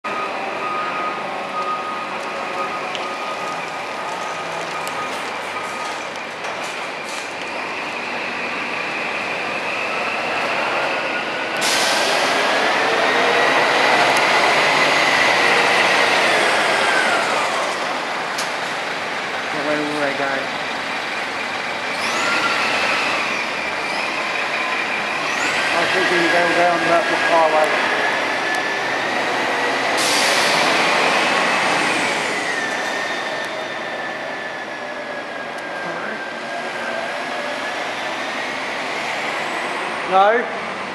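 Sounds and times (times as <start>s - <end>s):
bus engine pulling away: 0.1s - 40.9s
air brake hiss: 11.6s - 12.4s, 30.0s - 30.7s.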